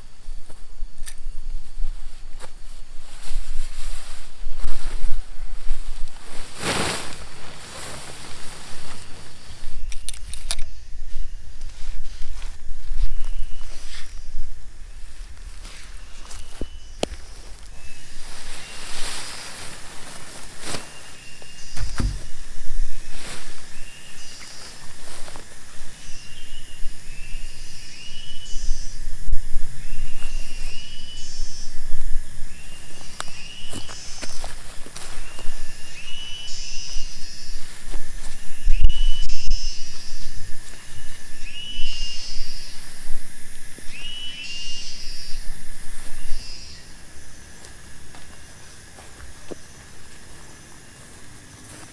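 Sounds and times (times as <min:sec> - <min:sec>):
steady hiss and low rumble: 0:00.0 - 0:51.9
rustling handling noises: 0:00.3 - 0:27.7, 0:32.3 - 0:46.7
high chirping calls: 0:29.8 - 0:43.2, 0:43.8 - 0:47.0.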